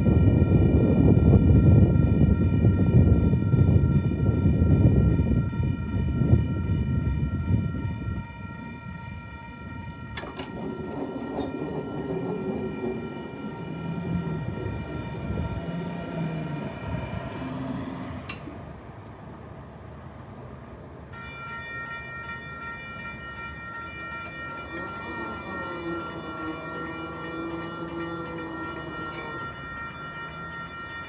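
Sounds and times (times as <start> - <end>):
diesel train engine humming: 0.0 - 31.0
rail rumble: 0.0 - 31.0.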